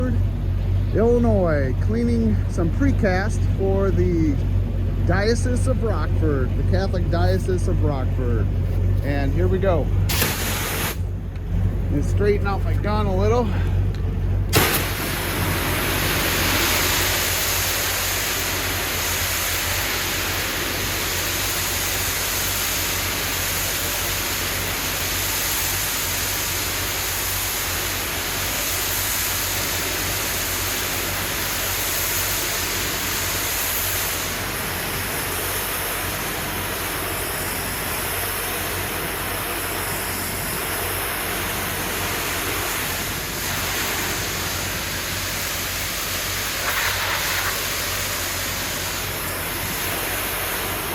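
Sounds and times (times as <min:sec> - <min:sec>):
pressure washer motor humming: 0:00.0 - 0:50.9
water jet hissing on concrete: 0:09.0 - 0:11.1, 0:12.4 - 0:50.9.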